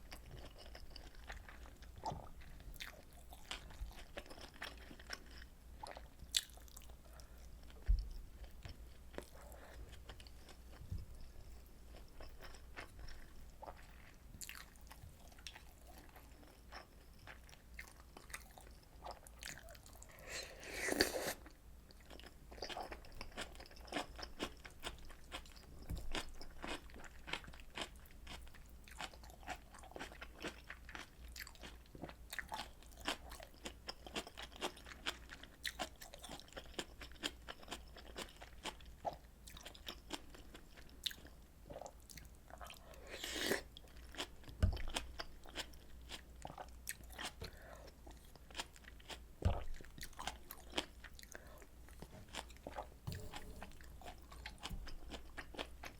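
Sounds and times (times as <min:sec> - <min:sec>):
chewing with wet mouth clicks: 0:00.1 - 0:10.8.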